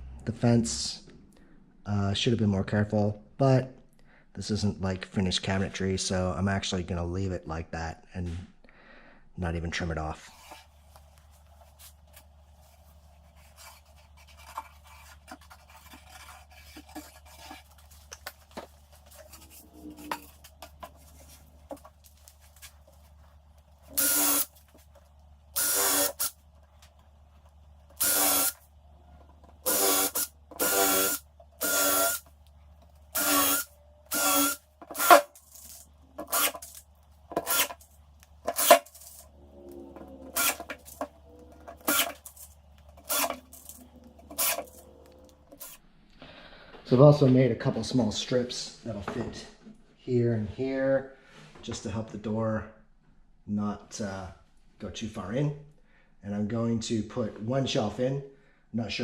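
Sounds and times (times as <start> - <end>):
power drill driving screws: 23.9 - 24.5, 25.6 - 26.3, 28.0 - 28.6, 29.6 - 32.3, 33.1 - 36.8, 40.4 - 41.0, 41.8 - 42.4, 43.0 - 44.8.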